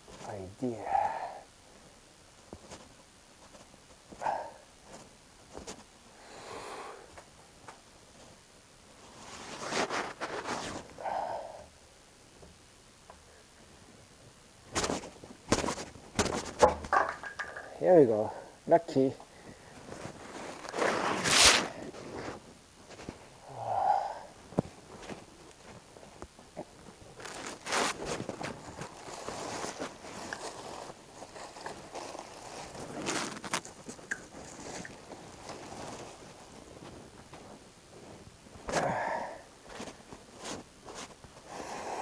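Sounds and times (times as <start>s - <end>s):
rustling and scraping materials: 2.4s - 5.9s, 9.0s - 11.0s, 14.7s - 18.3s, 19.0s - 23.3s, 24.5s - 38.9s, 39.6s - 41.5s
small knocks: 15.5s - 17.7s
short breathy vocal sound: 23.4s - 24.3s.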